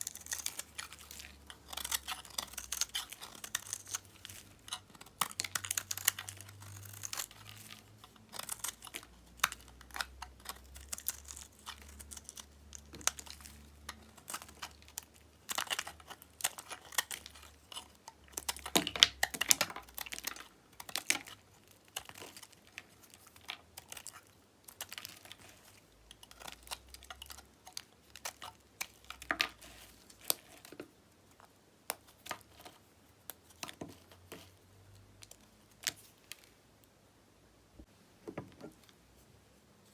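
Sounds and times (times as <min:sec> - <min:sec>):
knife cutting soap crackling: 0:00.0 - 0:36.6.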